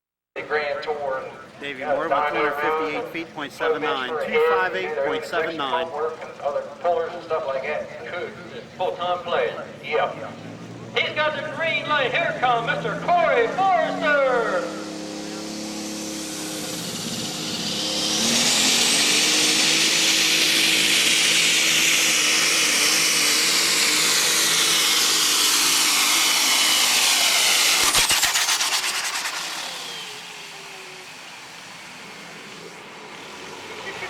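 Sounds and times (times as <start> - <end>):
tractor diesel engine at full throttle: 0.5 - 34.0
high turbo scream: 8.9 - 34.0.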